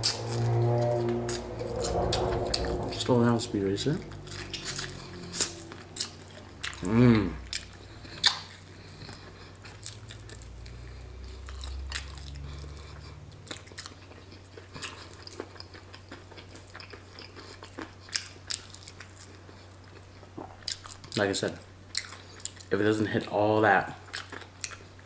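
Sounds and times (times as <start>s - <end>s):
steady low hum: 0.0s - 12.0s
chewing and crunching: 4.3s - 23.3s, 23.9s - 25.0s.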